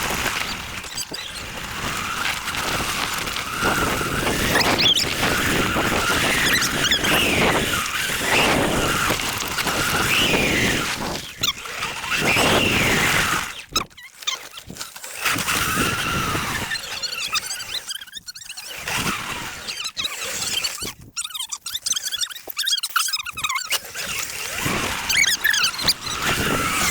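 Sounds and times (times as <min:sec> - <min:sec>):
electric motor whining: 0:00.0 - 0:13.8, 0:15.1 - 0:17.8, 0:23.8 - 0:26.9.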